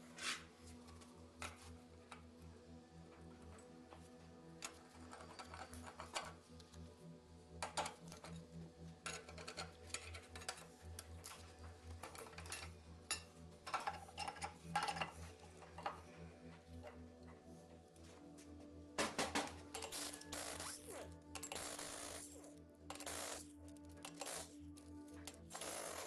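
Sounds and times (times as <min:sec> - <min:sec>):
metal tools clinking: 0:12.0 - 0:15.2.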